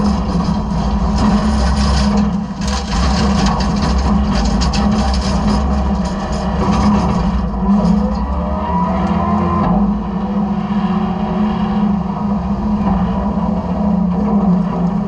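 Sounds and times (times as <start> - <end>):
garbage truck engine hum: 0.0 - 15.0
faint rising whine: 8.0 - 15.0.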